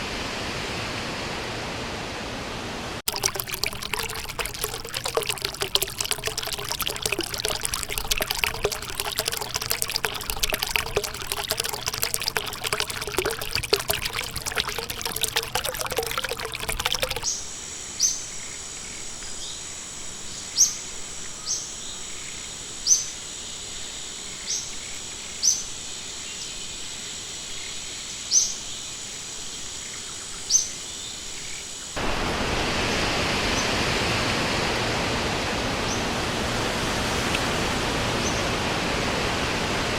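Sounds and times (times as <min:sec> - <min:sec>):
water trickling and splashing: 0:03.0 - 0:17.3
running water rushing hiss: 0:03.1 - 0:17.2.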